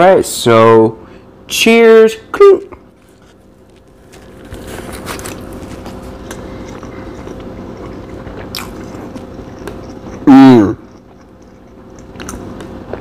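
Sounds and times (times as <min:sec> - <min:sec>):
faint steady hum: 0:00.0 - 0:13.0
person chewing food: 0:02.8 - 0:13.0.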